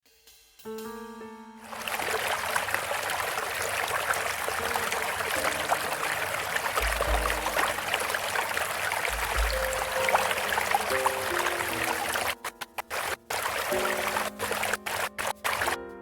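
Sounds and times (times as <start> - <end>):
trickling water: 1.6 - 15.8
small crackles: 1.6 - 16.0
soft music notes: 4.4 - 16.0.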